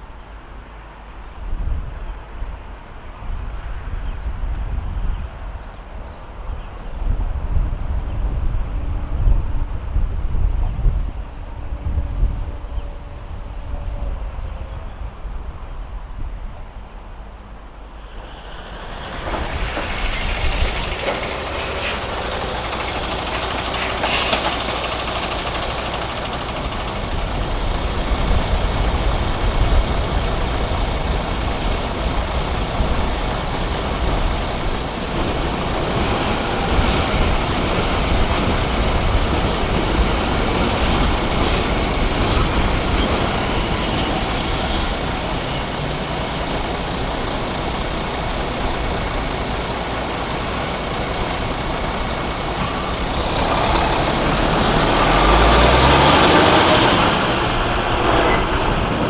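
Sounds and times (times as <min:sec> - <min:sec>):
train rumbling past: 0:00.0 - 0:59.0
high squeal: 0:18.0 - 0:59.0.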